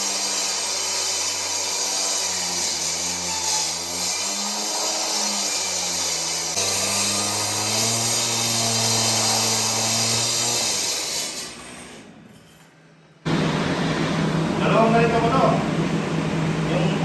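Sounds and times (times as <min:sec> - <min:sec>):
concrete saw cutting concrete: 0:00.0 - 0:12.0.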